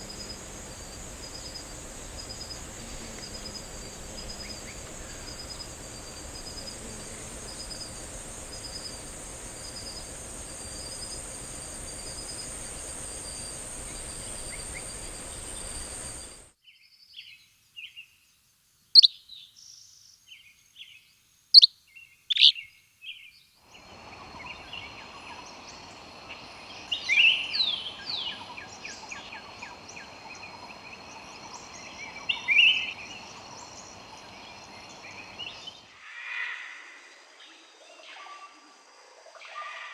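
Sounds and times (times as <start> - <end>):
insects buzzing: 0.0 - 16.6, 23.7 - 36.0.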